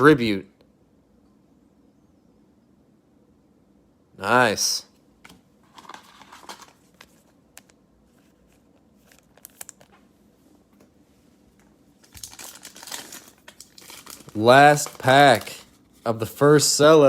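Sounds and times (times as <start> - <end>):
trading cards rustling and clicking: 5.2 - 10.1, 11.5 - 16.4
plastic wrapper crinkling: 5.6 - 10.0, 11.6 - 16.2.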